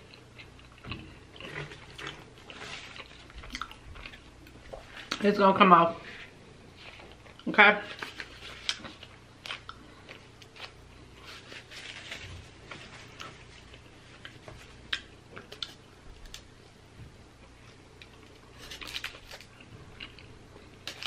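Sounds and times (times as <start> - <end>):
biting and chewing: 0.0 - 5.2, 17.4 - 21.0
foil and napkin crinkling: 11.2 - 14.4.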